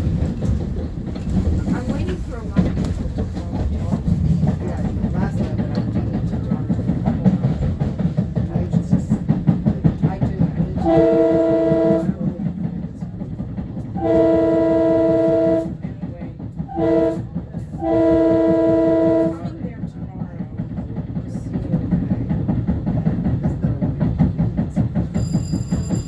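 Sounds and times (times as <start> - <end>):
train wheel clatter: 0.0 - 26.0
train horn blasts: 10.8 - 12.2, 14.0 - 15.8, 16.7 - 19.6.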